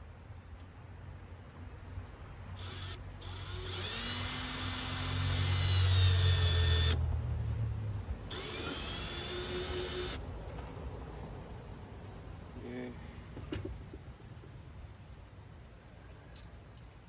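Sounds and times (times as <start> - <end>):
power drill whine: 2.6 - 7.0, 8.3 - 10.2.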